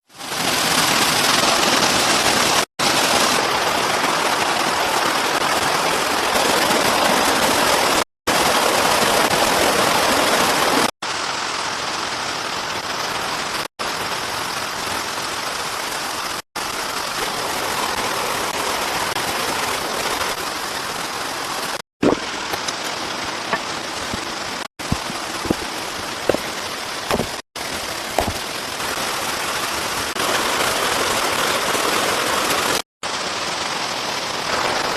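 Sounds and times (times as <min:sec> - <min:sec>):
heavy rain falling: 0:00.0 - 0:34.9
sharp knocks: 0:27.1 - 0:27.4, 0:28.2 - 0:28.4.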